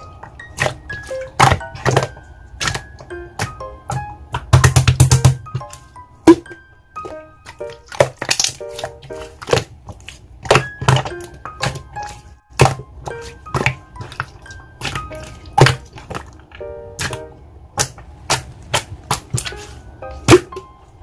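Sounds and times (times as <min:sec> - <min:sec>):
light keyboard tune: 0:00.0 - 0:17.8, 0:19.3 - 0:21.0
sharp clicking beats: 0:00.6 - 0:05.8.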